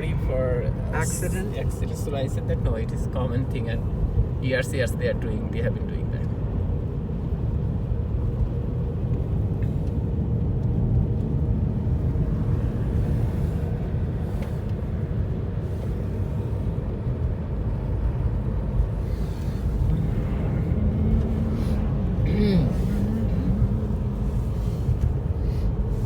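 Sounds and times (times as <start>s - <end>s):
car driving through snow: 10.0s - 26.0s.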